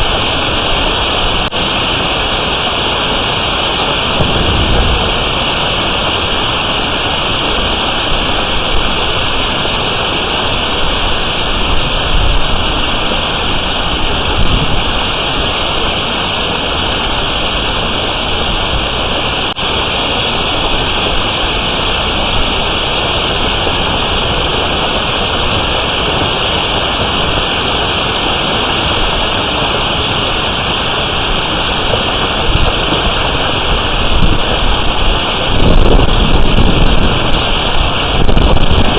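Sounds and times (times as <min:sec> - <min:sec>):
hail and heavy rain: 0:00.0 - 0:38.9
wind gusts: 0:00.0 - 0:38.9.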